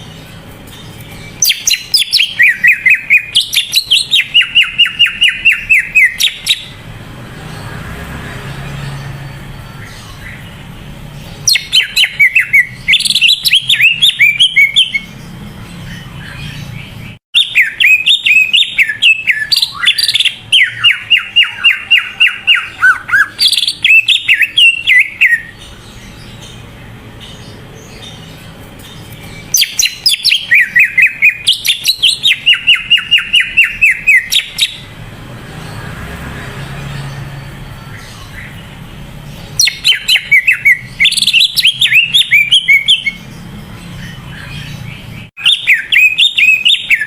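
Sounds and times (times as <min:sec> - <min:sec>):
bird singing rapid falling notes: 0:00.0 - 0:47.0.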